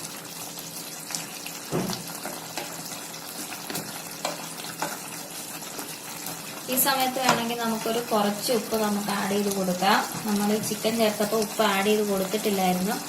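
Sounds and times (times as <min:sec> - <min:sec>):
food sizzling in a pan: 0:00.0 - 0:13.0
spoon knocking against pan: 0:07.2 - 0:07.5.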